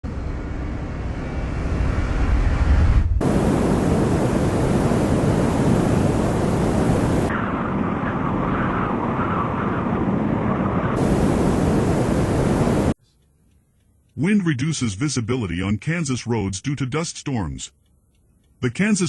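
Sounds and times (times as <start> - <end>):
heavy low rumbling: 0.1 - 9.1
wind buffeting microphone: 2.1 - 13.0.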